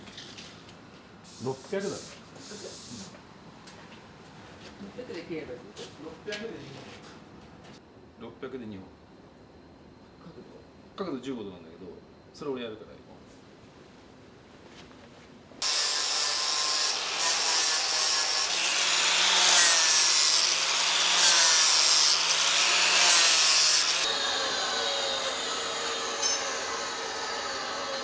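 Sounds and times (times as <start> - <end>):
power saw cutting metal pipe: 15.6 - 28.0.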